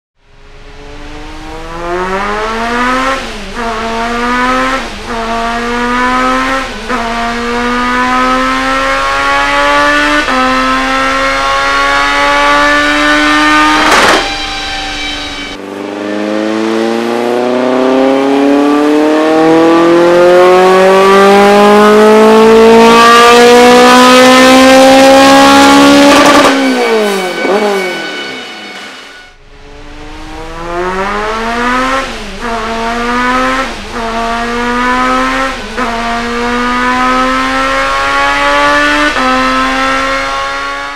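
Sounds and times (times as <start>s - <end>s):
car engine revving hard: 0.4s - 27.7s, 29.5s - 40.9s
sharp crack: 13.6s - 15.3s.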